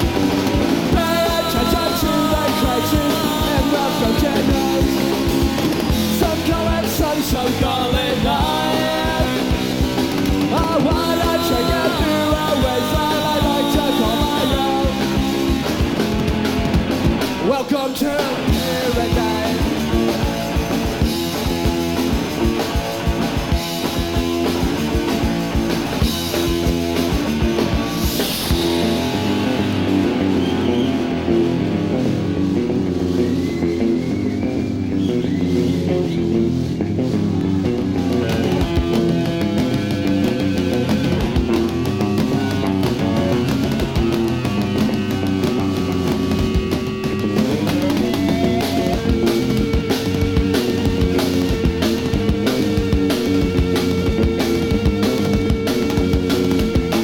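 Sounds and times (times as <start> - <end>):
drum kit fast beat: 0.0 - 31.3, 38.1 - 57.0
bass guitar: 0.0 - 57.0
distorted electric guitar chords: 0.0 - 57.0.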